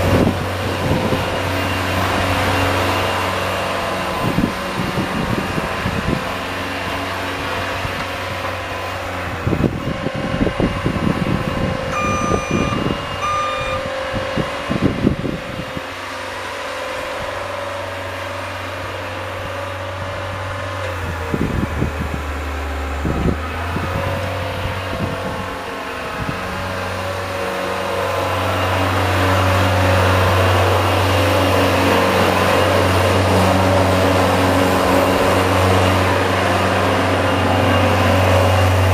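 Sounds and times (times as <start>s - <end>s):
short high beeps: 11.9s - 13.9s.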